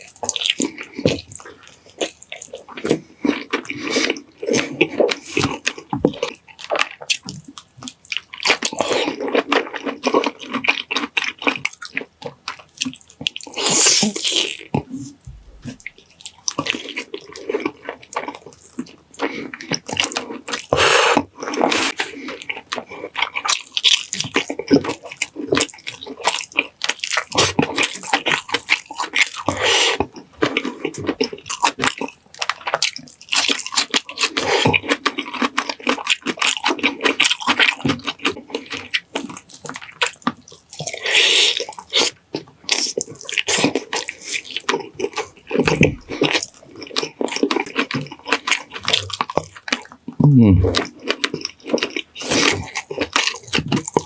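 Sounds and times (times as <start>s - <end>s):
wet chewing sounds: 0.0s - 54.0s.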